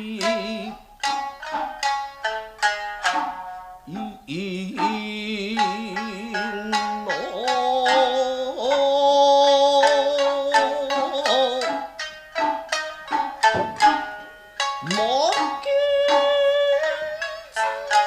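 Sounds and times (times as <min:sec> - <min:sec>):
person singing with wide vibrato: 0:00.0 - 0:01.6, 0:03.8 - 0:12.0, 0:14.7 - 0:18.0
shamisen plucked notes: 0:00.0 - 0:18.0.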